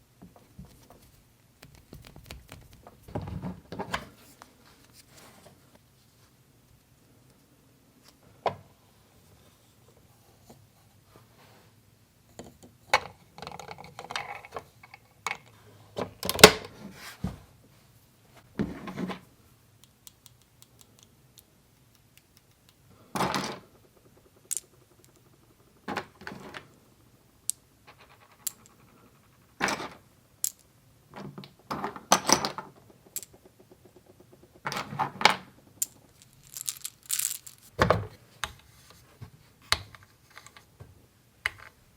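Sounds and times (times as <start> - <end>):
plastic toy pieces clicking: 19.8 - 22.9, 23.5 - 25.5, 35.8 - 37.7.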